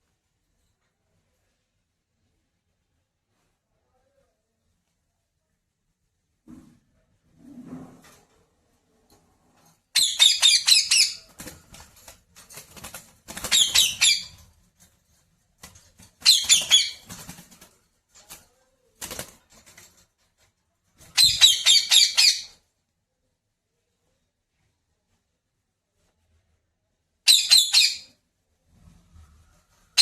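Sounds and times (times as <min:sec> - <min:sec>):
parrot squawking: 0:10.0 - 0:11.3, 0:13.5 - 0:14.4, 0:16.2 - 0:17.0, 0:21.2 - 0:22.5.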